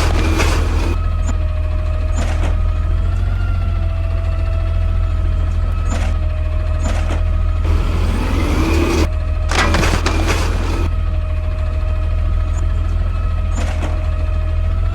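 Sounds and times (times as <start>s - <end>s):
garbage truck engine hum: 0.0s - 1.2s, 7.5s - 11.2s
sharp metallic clanks: 7.6s - 10.9s.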